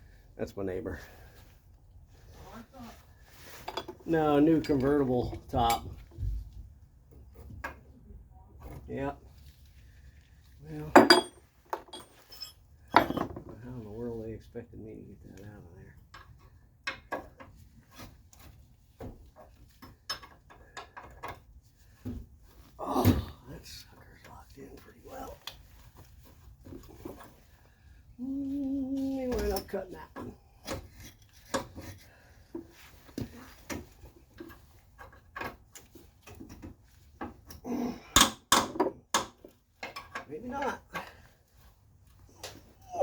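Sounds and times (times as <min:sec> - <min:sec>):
hand tools clanking on metal: 0:10.8 - 0:13.6
hand tools on metal car parts: 0:10.9 - 0:13.6, 0:19.3 - 0:21.6, 0:29.3 - 0:41.2.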